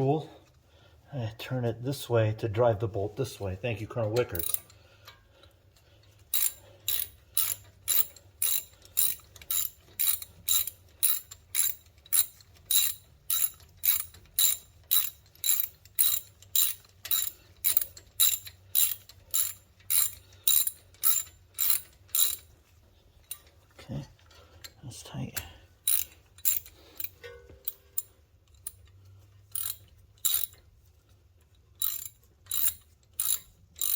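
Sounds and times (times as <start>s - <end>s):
ratchet wrench clicking: 4.1s - 5.2s, 6.1s - 22.5s, 25.4s - 30.6s, 31.8s - 33.9s.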